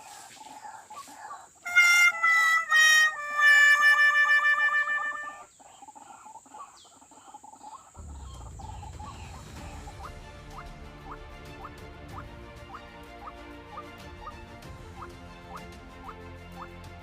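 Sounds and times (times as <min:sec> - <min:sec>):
nasal bird calls: 0:00.0 - 0:11.7
background music with steady beat: 0:08.0 - 0:17.0.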